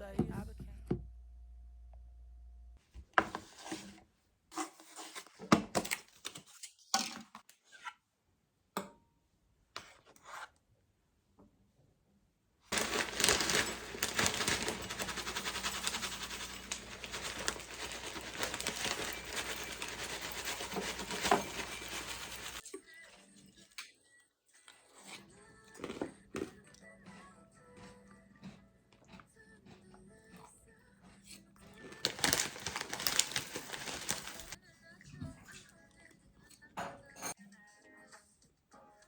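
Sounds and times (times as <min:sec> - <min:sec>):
handling small objects: 0:12.7 - 0:22.6, 0:31.8 - 0:34.6.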